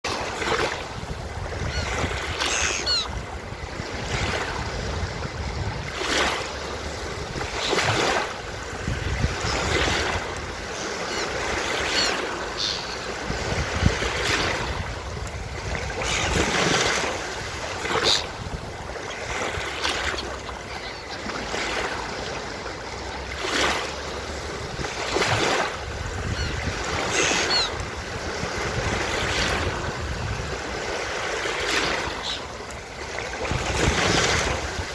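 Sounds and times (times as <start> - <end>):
ocean waves washing on beach: 0.0 - 34.9
seagull cries: 1.6 - 3.2, 10.8 - 13.1, 20.6 - 21.4, 26.2 - 27.8.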